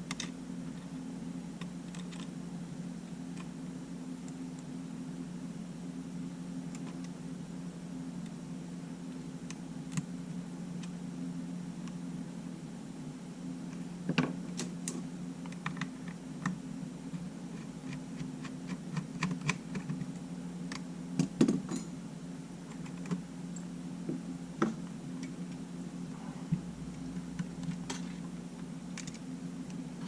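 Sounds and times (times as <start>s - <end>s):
steady low hum: 0.0s - 30.0s
small tools clicking and tapping: 17.2s - 22.0s.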